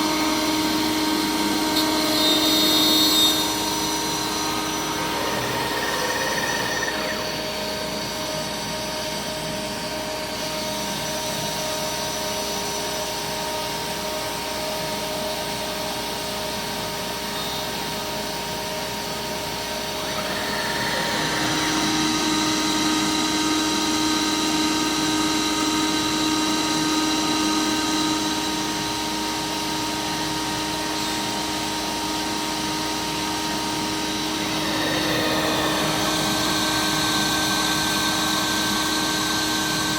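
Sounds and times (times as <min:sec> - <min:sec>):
router cutting panel: 0:00.0 - 0:08.7, 0:19.5 - 0:39.9
router spindle whine: 0:00.0 - 0:39.9.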